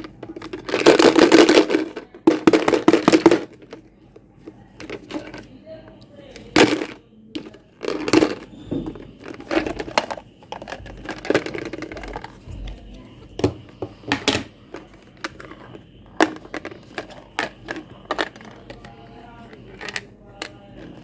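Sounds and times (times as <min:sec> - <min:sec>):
crinkling: 0:06.6 - 0:12.8.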